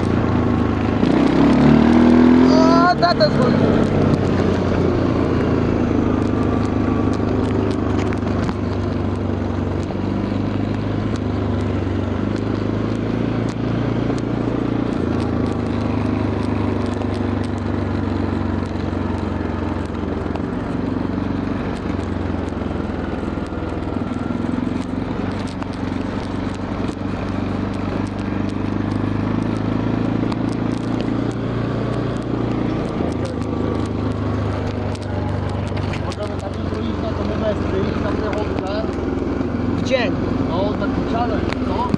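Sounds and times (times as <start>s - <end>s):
quad bike engine running: 0.0s - 41.9s
faint clicks: 23.2s - 37.4s.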